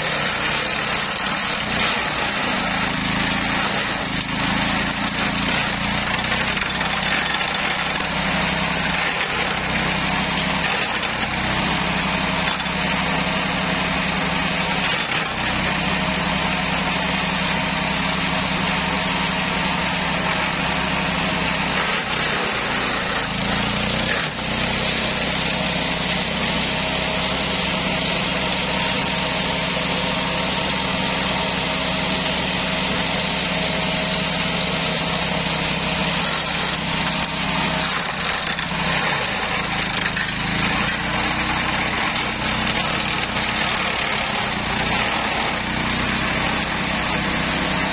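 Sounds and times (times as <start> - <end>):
mower engine running: 0.0 - 47.9
rotor chopping grass: 0.0 - 47.9.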